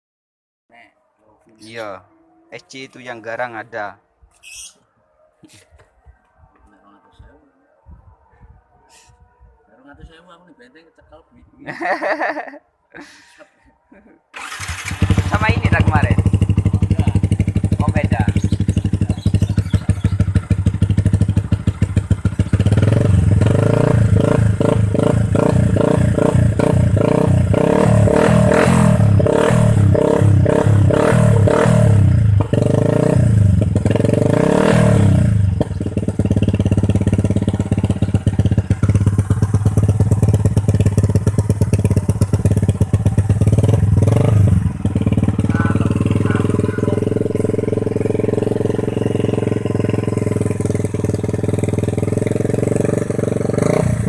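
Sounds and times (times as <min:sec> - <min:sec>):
motorcycle engine revving and idling: 0:14.4 - 0:54.0.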